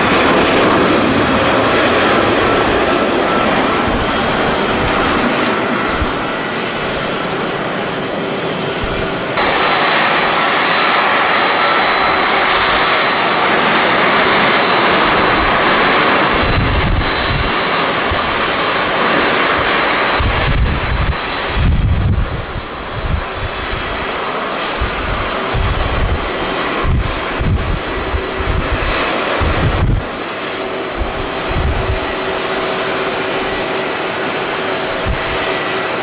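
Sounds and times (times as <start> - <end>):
wind rumbling on microphone: 0.0 - 7.2, 8.7 - 36.0
jet engines running: 0.0 - 36.0
high steady whine: 8.7 - 36.0.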